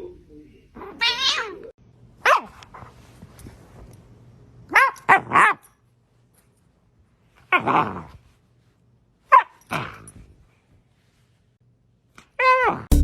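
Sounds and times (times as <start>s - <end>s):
dog barking: 2.2s - 2.7s, 4.7s - 5.6s, 9.3s - 9.6s.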